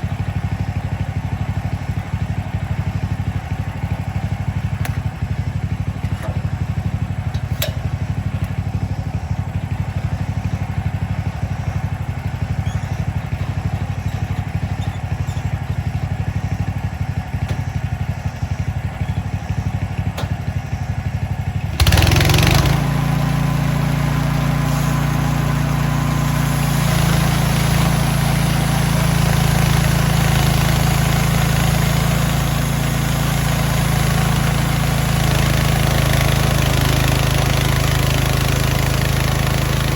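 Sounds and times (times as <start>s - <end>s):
gasoline engine idling: 0.0s - 39.9s
hiss: 24.6s - 30.1s.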